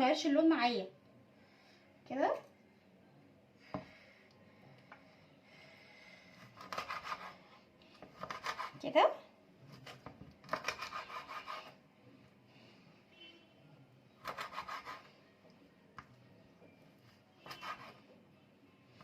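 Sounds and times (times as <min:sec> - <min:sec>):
rapid scraping in kitchen: 0:06.4 - 0:07.5, 0:08.2 - 0:09.0, 0:09.7 - 0:11.8, 0:14.2 - 0:15.2, 0:17.4 - 0:18.1.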